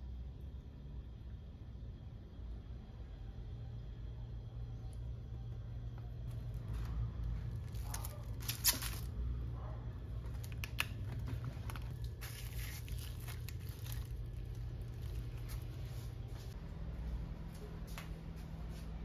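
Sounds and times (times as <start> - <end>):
steady low hum: 0.0 - 19.0
cling wrap ripping and crinkling: 7.5 - 9.2, 10.3 - 15.8.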